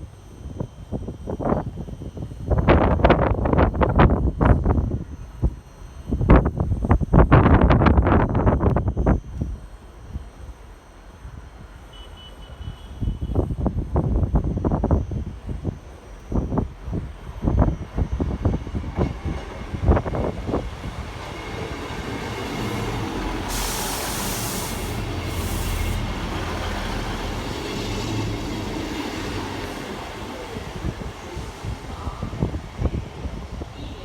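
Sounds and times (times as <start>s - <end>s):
train rumbling: 13.5s - 34.0s
train knocking on track: 17.3s - 34.0s
loud hiss: 21.8s - 29.6s.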